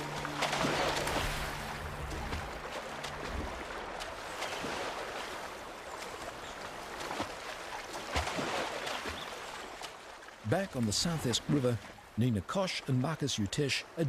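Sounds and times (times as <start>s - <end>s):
faint clicks and splashes: 0.0s - 12.0s
river water rushing: 0.0s - 14.0s.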